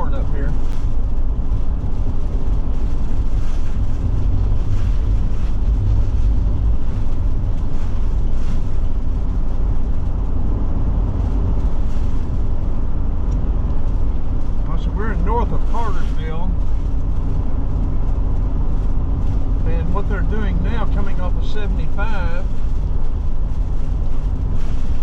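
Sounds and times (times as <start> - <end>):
road and engine rumble: 0.0 - 25.0.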